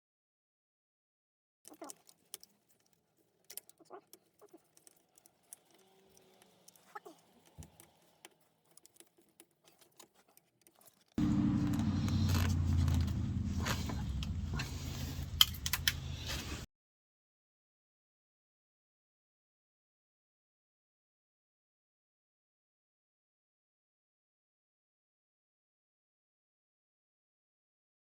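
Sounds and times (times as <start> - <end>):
clicks and rattles of small tools: 1.7 - 16.6
car engine running: 11.2 - 16.4.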